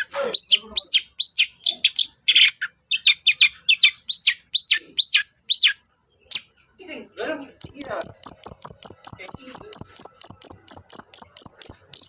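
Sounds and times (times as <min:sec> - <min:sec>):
bird whistled song: 0:00.4 - 0:06.5.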